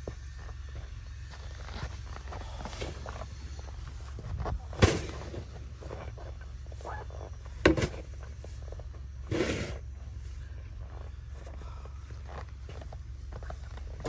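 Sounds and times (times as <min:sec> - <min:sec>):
steady low hum: 0:00.0 - 0:14.0
snow shovel striking: 0:04.6 - 0:05.6, 0:07.6 - 0:08.1, 0:09.3 - 0:09.8
snow shovel scraping: 0:04.8 - 0:05.6, 0:09.2 - 0:09.9.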